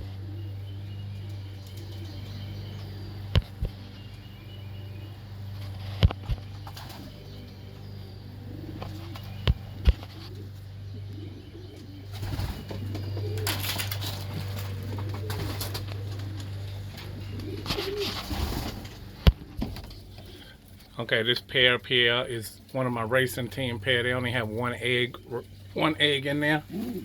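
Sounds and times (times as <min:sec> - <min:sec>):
pigeons cooing: 0:00.0 - 0:27.0
steady low hum: 0:00.0 - 0:27.0
wings flapping: 0:05.6 - 0:07.2, 0:12.1 - 0:20.4.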